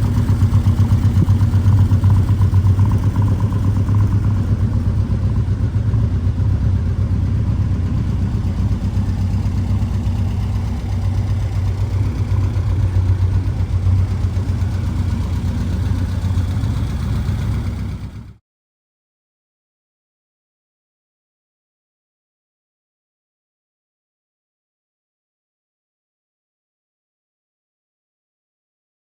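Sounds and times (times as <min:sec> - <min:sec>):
car engine idling: 0:00.0 - 0:18.4.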